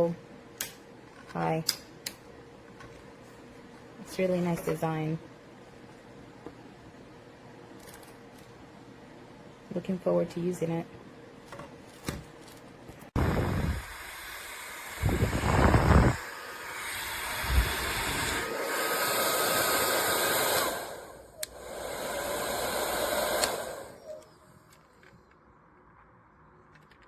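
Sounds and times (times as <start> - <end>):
hair dryer blowing: 13.2 - 24.3
hair dryer switch click: 23.2 - 23.8.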